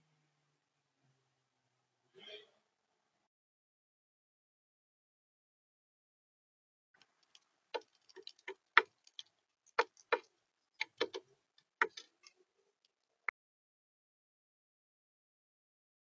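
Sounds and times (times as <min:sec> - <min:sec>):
beak pecking taps and clicks: 0:07.0 - 0:12.4.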